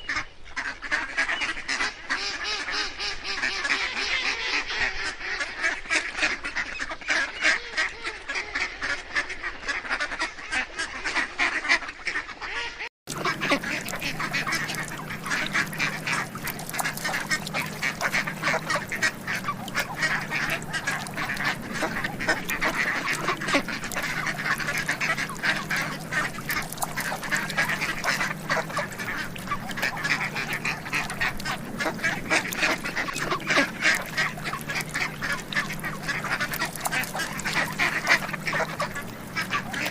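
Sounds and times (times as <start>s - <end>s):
many birds calling: 13.1s - 39.9s
steady low hum: 13.1s - 39.9s.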